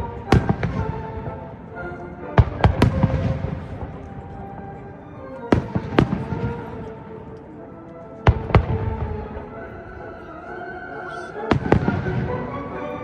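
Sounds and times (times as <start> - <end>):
music playing: 0.0 - 13.0.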